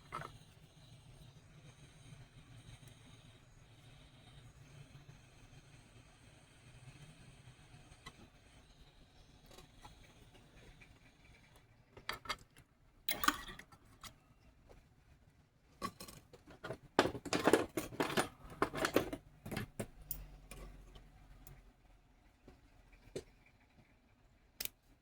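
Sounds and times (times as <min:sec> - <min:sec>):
small metal tools clattering: 0:13.1 - 0:14.2, 0:15.8 - 0:20.8.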